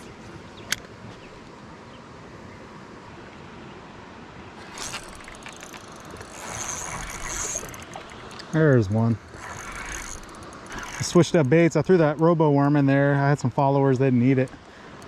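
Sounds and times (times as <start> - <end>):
outdoor noise on water: 0.0 - 15.0
rattle of clicks: 4.6 - 8.5, 9.2 - 12.3.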